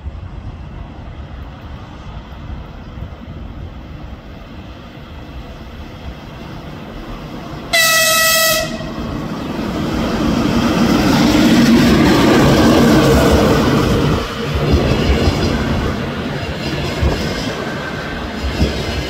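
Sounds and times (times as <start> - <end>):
train rumbling on rails: 0.0 - 19.0
locomotive horn blast: 7.7 - 9.0.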